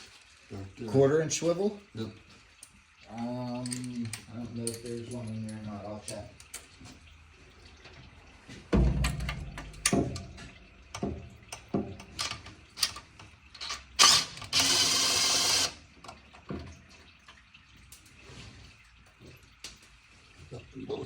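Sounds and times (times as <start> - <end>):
heavy thump: 8.7 - 10.6.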